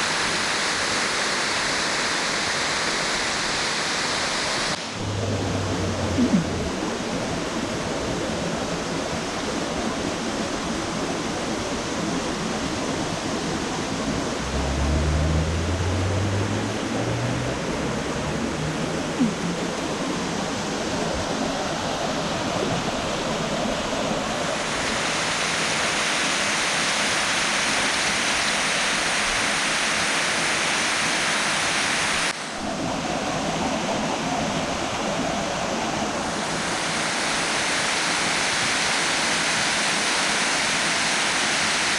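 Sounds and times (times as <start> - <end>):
waterfall rushing: 0.0 - 41.9
low rumbles: 4.8 - 8.3, 13.7 - 21.1.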